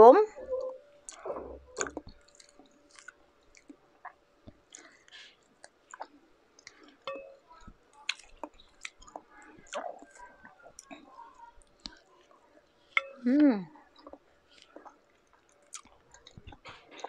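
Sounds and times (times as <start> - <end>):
soft chewing: 0.5 - 17.0
wet mouth clicks: 1.1 - 5.0.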